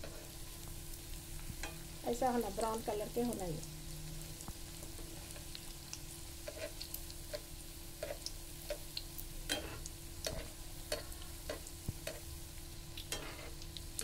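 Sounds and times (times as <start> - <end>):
food frying with pops: 0.0 - 14.0
metal spatula and tongs: 9.5 - 12.2, 13.1 - 13.5.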